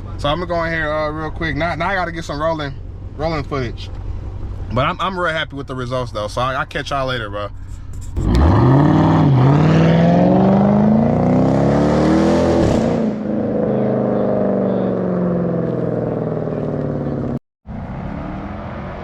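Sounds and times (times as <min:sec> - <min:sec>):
car engine accelerating hard: 0:08.2 - 0:19.0.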